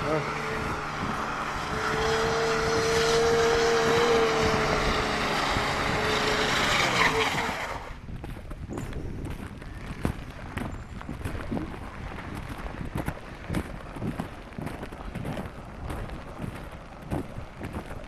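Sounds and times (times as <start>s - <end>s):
motor vehicle passing: 0.0s - 8.1s.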